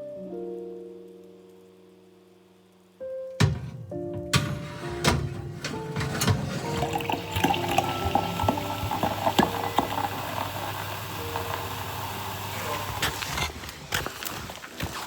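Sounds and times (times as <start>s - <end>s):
water running: 5.2s - 15.0s.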